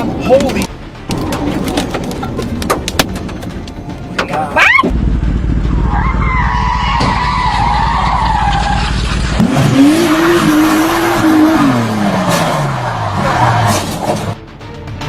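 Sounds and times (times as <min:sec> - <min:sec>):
low rumble: 0:04.9 - 0:07.0
car tyres squealing: 0:05.8 - 0:14.4.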